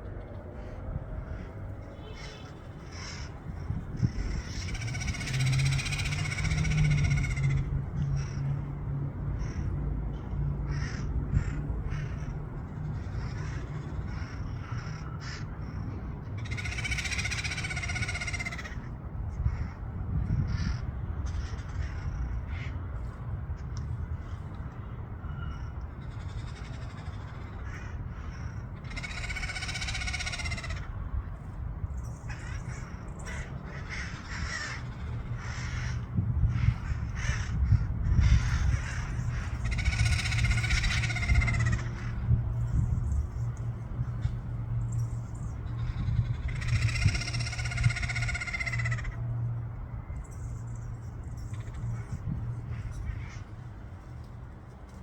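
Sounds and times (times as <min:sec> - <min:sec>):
parrots squawking: 0:01.3 - 0:08.6, 0:10.7 - 0:18.9, 0:26.1 - 0:31.0, 0:32.2 - 0:42.9, 0:45.0 - 0:49.4.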